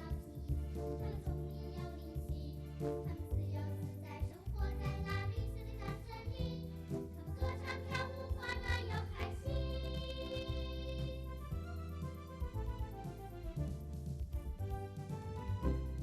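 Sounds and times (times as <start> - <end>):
voices singing: 0.0 - 11.4
instrumental accompaniment: 0.0 - 16.0.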